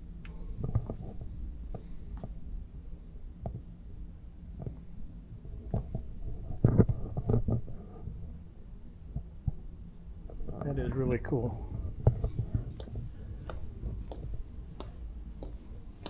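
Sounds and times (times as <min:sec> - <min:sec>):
low rumble: 0:09.4 - 0:16.0
soft knocks and clicks: 0:12.0 - 0:15.7.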